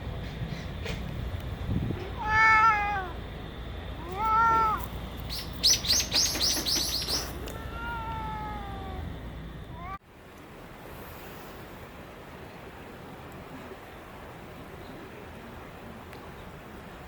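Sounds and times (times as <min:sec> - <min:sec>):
cat meowing: 0:02.1 - 0:03.2, 0:04.0 - 0:04.8, 0:07.4 - 0:09.1, 0:09.7 - 0:10.0.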